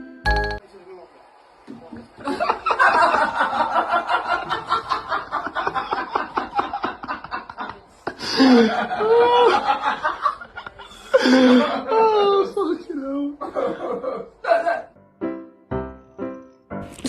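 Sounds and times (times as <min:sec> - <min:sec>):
person giggling: 0:06.5 - 0:09.7, 0:10.6 - 0:14.9.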